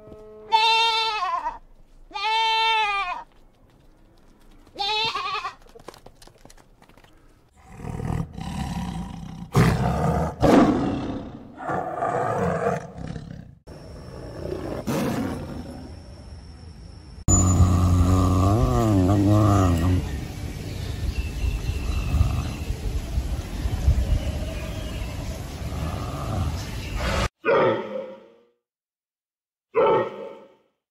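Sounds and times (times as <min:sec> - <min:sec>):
tiger growling and roaring: 0:07.6 - 0:16.0, 0:17.3 - 0:20.2, 0:24.2 - 0:27.9.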